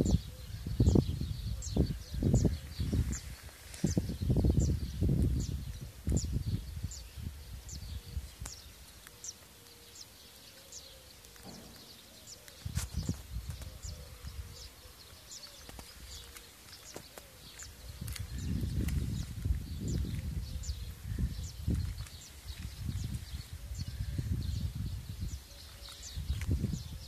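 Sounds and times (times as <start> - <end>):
low rumbles on microphone: 0.0 - 8.2, 17.8 - 25.4
small bird chirping: 0.0 - 27.0.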